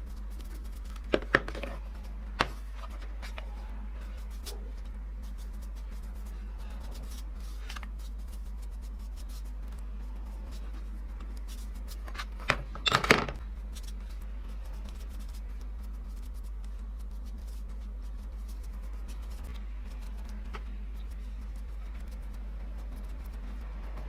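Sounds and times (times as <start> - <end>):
steady low hum: 0.0 - 24.0
clicks and knocks of handled objects: 11.2 - 13.9.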